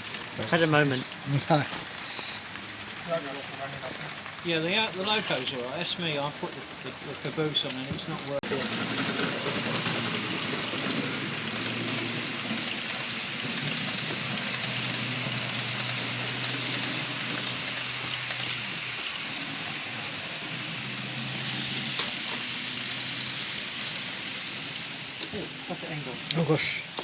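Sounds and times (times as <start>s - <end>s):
constant hiss: 0.0s - 27.0s
model train motor hum: 0.0s - 27.0s.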